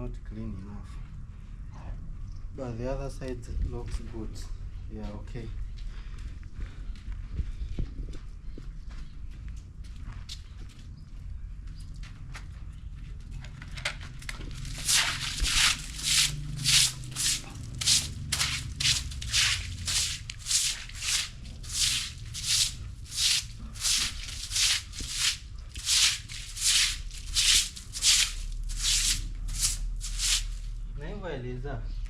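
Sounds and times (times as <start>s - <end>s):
broom sweeping ground: 14.5s - 30.8s.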